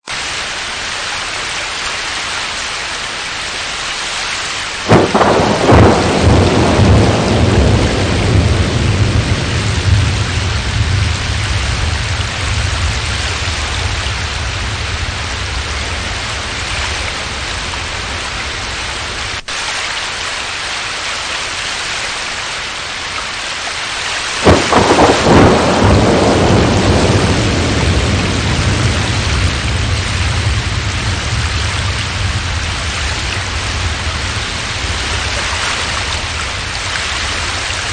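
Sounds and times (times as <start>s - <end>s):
heavy rain: 0.0s - 37.9s
thunder cracking and rumbling: 4.8s - 19.4s, 24.4s - 37.9s.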